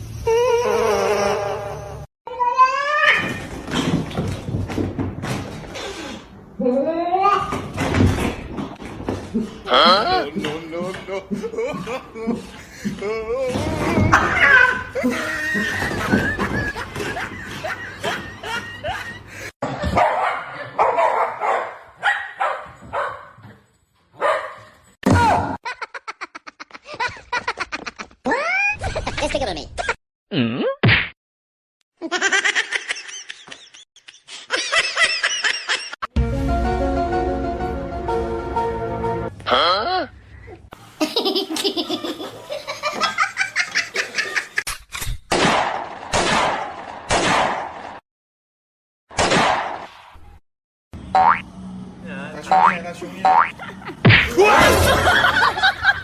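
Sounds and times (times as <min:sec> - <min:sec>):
person laughing hard: 0:09.4 - 0:14.2, 0:14.9 - 0:19.9, 0:25.6 - 0:29.4, 0:32.0 - 0:36.0, 0:53.4 - 0:56.0
dog barking: 0:19.9 - 0:23.4, 0:24.2 - 0:24.7.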